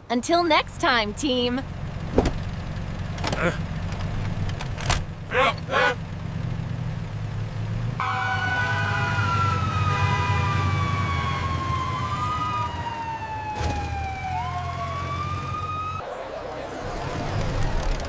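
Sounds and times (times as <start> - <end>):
low engine hum: 0.9 - 8.0
emergency vehicle sirens: 8.0 - 18.0.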